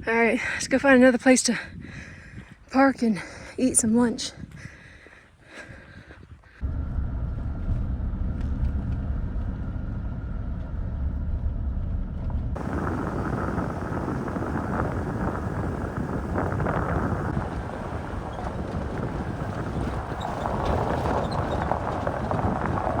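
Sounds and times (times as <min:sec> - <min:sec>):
pickup truck driving: 0:06.6 - 0:23.0
wind noise rushing: 0:12.3 - 0:23.0.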